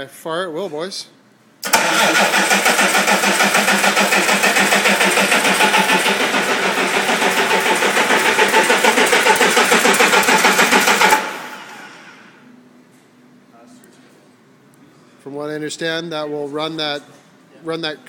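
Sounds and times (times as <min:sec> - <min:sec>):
starter cranking diesel engine: 0:01.6 - 0:12.1.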